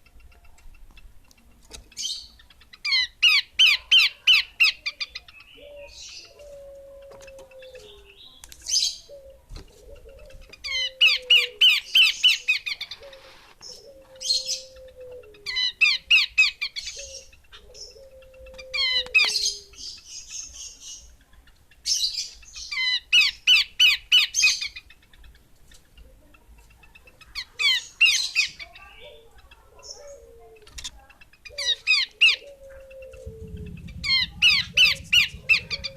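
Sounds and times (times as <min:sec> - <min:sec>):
bird chattering calls: 0:27.0 - 0:35.9.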